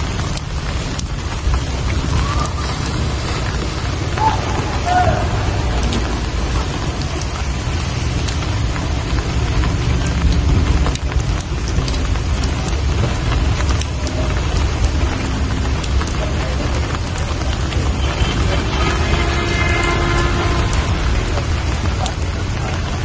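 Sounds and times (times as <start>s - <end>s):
low rumble: 0.0s - 17.7s
rain falling: 0.0s - 23.0s
raindrops ticking: 0.0s - 23.0s.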